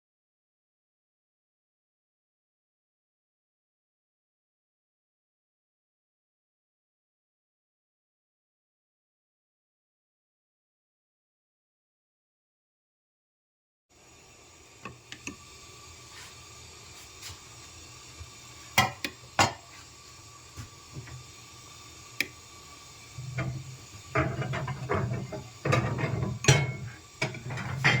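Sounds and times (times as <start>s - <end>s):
dishes and utensils clattering: 23.2s - 28.0s.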